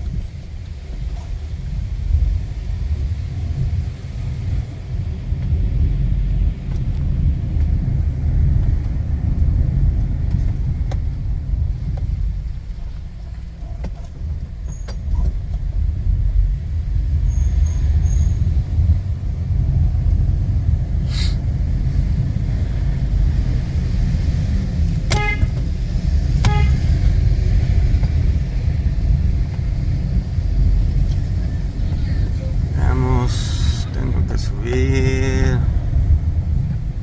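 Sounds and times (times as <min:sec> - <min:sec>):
city road traffic rumble: 0:00.0 - 0:37.0
short hiss: 0:21.1 - 0:21.4
car horn toots: 0:25.1 - 0:25.6, 0:26.4 - 0:26.9.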